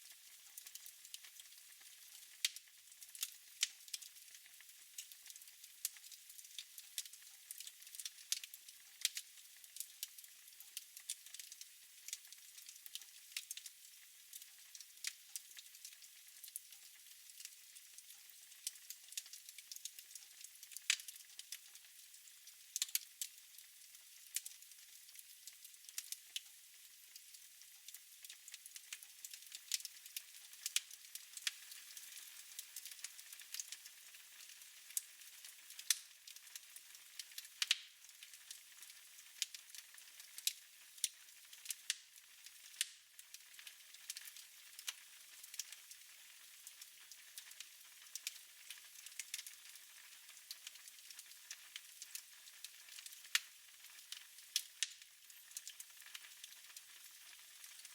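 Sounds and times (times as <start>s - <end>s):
wood fire crackling: 0.0s - 10.3s, 11.0s - 16.6s, 17.3s - 21.8s, 22.5s - 26.1s, 27.2s - 57.9s.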